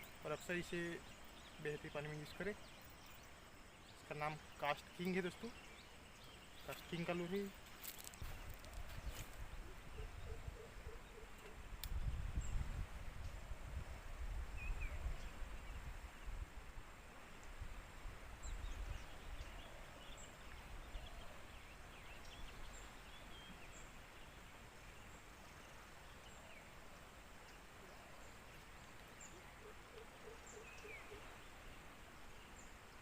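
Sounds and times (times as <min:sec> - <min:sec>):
steady hiss: 0:00.0 - 0:09.9
repeated lower bird calls: 0:00.0 - 0:11.7, 0:27.5 - 0:32.8.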